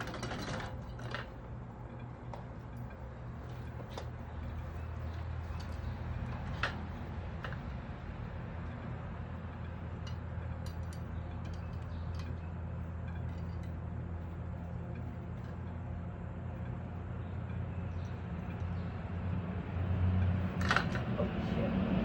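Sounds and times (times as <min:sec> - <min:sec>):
ceiling fan motor hum: 0:00.0 - 0:22.0.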